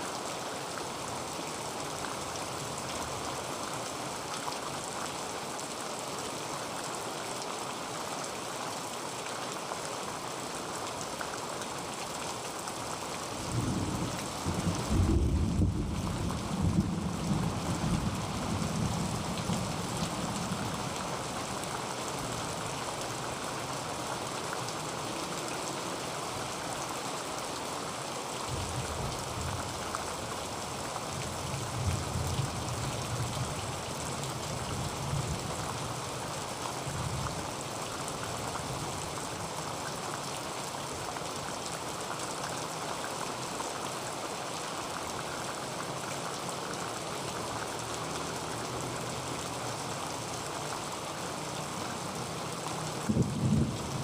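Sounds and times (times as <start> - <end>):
heavy rain on a tin roof: 0.0 - 54.0
distant thunder rumbling: 13.6 - 18.1.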